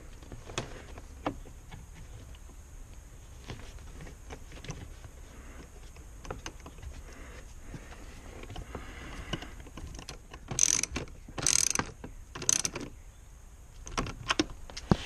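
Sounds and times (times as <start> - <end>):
ratchet wrench ratcheting: 10.0 - 12.8.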